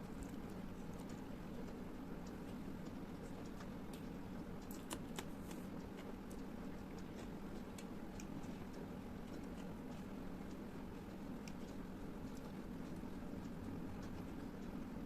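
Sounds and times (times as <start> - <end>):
low background hum: 0.0 - 15.0
mouth clicks from chewing: 3.3 - 6.4.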